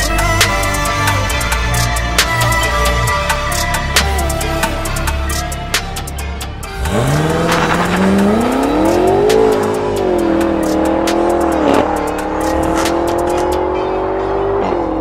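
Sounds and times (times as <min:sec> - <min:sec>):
background music with steady beat: 0:00.0 - 0:15.0
car engine accelerating hard: 0:06.5 - 0:15.0.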